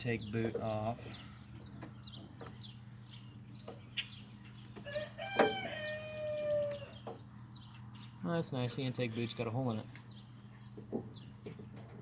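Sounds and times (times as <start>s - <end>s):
rooster crowing: 4.8s - 7.0s.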